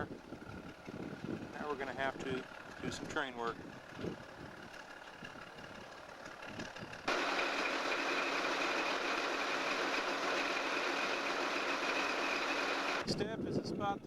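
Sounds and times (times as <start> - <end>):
diesel locomotive engine running: 0.0 - 14.0
steady whine: 6.6 - 13.2.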